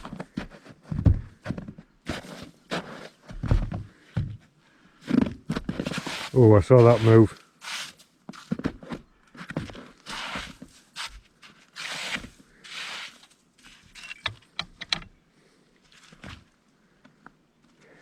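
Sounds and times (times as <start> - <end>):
snow crunching and scraping: 5.1 - 8.5, 9.8 - 14.2
sharp clicks: 14.1 - 15.1.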